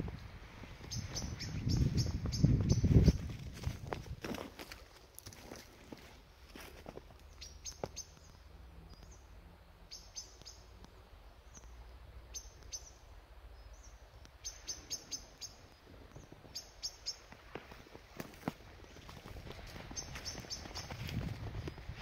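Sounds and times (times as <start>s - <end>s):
songbirds chirping: 0.0s - 3.8s, 4.6s - 22.0s.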